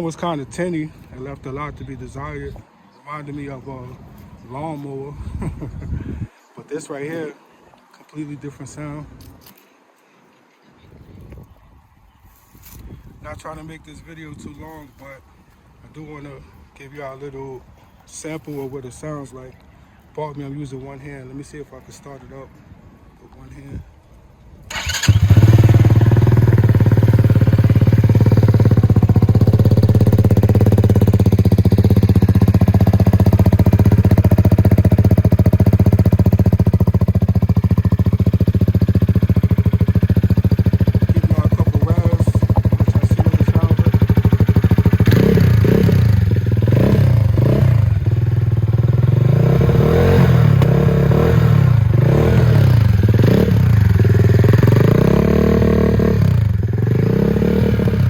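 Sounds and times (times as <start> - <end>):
motorcycle engine idling: 24.7 - 58.0
motorcycle engine revving: 24.7 - 58.0
motorcycle engine starting: 24.7 - 58.0.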